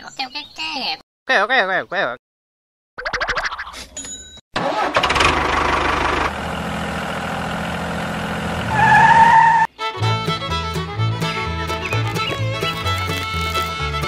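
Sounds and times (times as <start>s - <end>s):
tractor engine cranking and idling: 4.6s - 9.0s.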